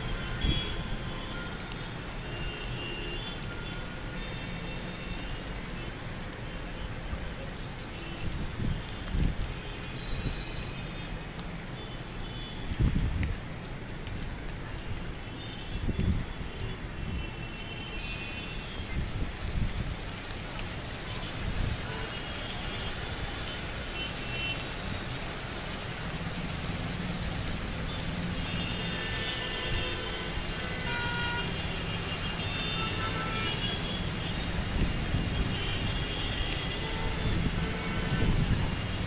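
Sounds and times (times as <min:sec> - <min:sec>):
rain hiss: 0:00.0 - 0:39.0.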